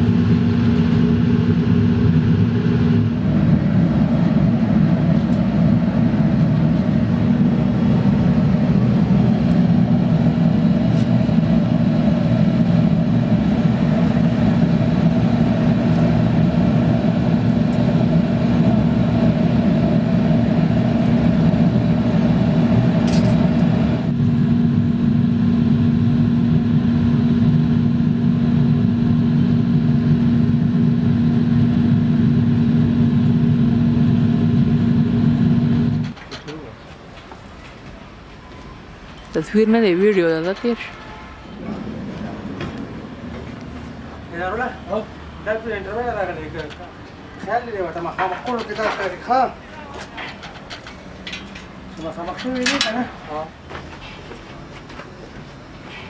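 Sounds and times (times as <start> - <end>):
machine motor humming: 0.0 - 24.2, 38.8 - 53.3.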